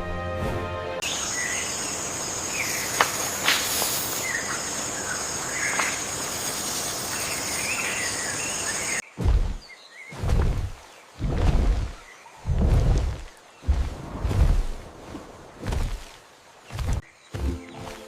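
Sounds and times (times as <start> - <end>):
high insect drone: 1.0 - 9.0.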